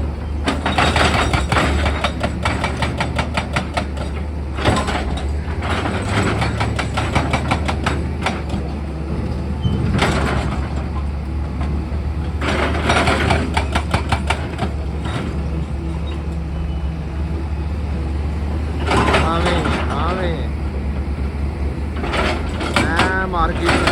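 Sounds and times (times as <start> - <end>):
excavator diesel engine humming: 0.0 - 23.9
rapid clattering: 22.0 - 23.9.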